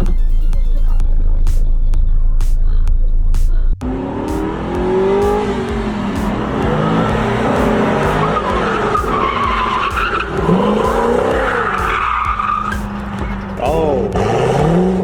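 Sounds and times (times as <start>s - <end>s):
car engine revving: 0.0s - 15.0s
tyres squealing: 6.0s - 15.0s.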